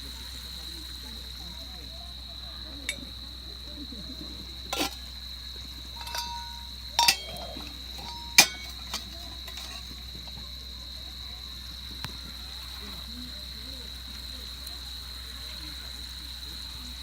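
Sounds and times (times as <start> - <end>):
metal cookware clinking: 4.7 - 5.2, 6.0 - 10.4.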